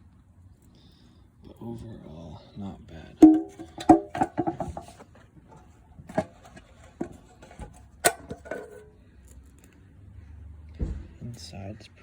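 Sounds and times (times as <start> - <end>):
metal fuel tank clanking: 3.2 - 8.9.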